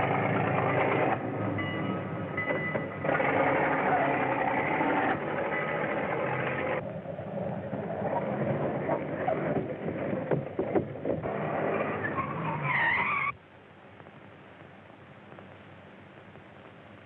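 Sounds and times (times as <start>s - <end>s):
steady low hiss: 0.0s - 3.1s, 5.2s - 17.0s
vehicle running: 0.0s - 12.8s.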